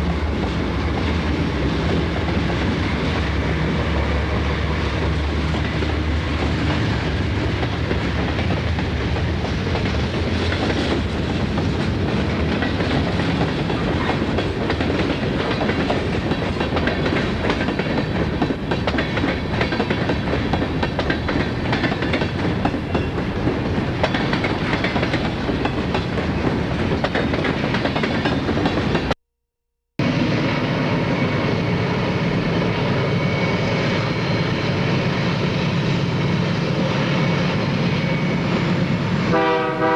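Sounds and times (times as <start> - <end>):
diesel locomotive engine drone: 0.0 - 29.1, 30.0 - 39.9
freight train cars rumbling past: 0.0 - 29.2, 30.0 - 39.9
wheels clicking over rail joints: 7.6 - 29.1.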